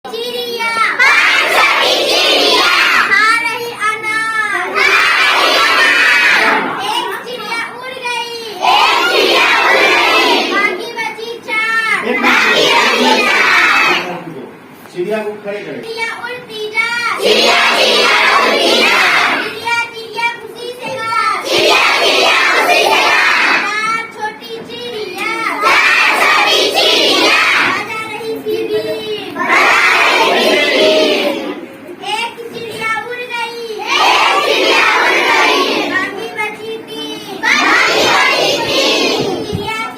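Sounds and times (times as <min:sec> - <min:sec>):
children chanting: 0:00.6 - 0:03.2, 0:04.6 - 0:07.3, 0:08.6 - 0:10.9, 0:12.0 - 0:14.1, 0:17.1 - 0:19.7, 0:20.9 - 0:23.9, 0:25.1 - 0:31.7, 0:33.8 - 0:39.9.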